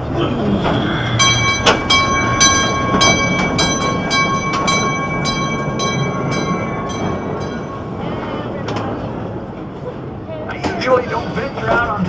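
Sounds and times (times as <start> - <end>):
train wheels clattering on track: 0.6 - 12.0
high ringing tone: 1.0 - 8.6.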